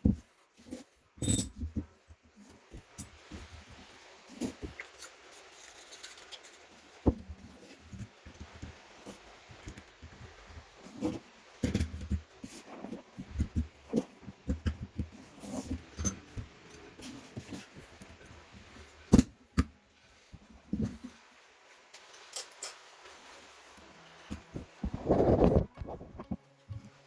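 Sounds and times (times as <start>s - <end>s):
tools and parts clicking and knocking: 1.2s - 1.9s, 11.0s - 12.4s, 13.3s - 18.2s, 19.0s - 19.7s, 22.0s - 22.9s.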